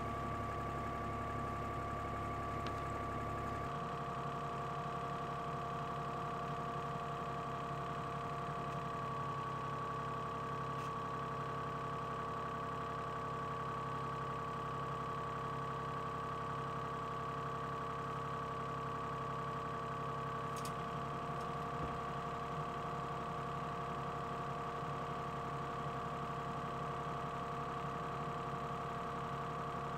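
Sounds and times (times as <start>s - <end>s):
excavator engine droning: 0.0s - 12.0s.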